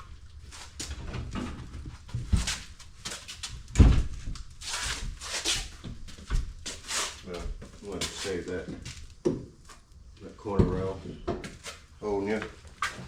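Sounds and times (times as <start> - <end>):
knocks and thumps: 3.5 - 4.4, 10.5 - 11.6
scraping or hissing bursts: 6.8 - 7.3.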